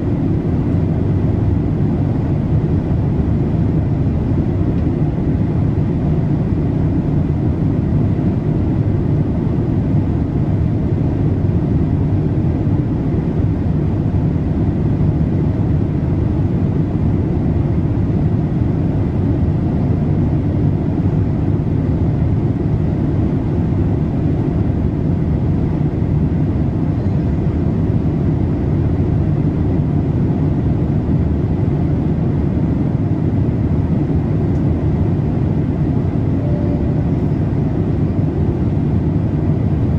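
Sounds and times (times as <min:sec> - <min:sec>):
airplane cabin airflow and engine rush: 0:00.0 - 0:39.9
faint steady high tone: 0:36.3 - 0:37.6.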